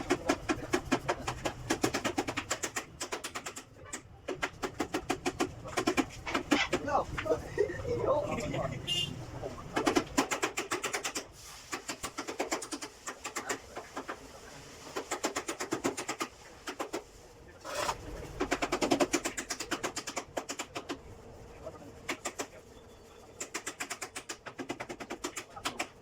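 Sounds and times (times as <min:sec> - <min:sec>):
rapid scraping strokes: 0:09.8 - 0:20.8.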